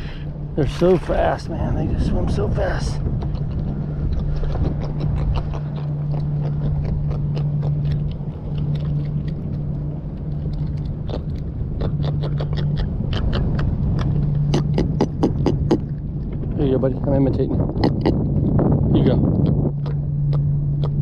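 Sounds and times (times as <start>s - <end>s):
wind rumble on microphone: 0.0s - 21.0s
fish grunting croak: 3.1s - 16.2s, 17.6s - 18.3s, 19.4s - 21.0s.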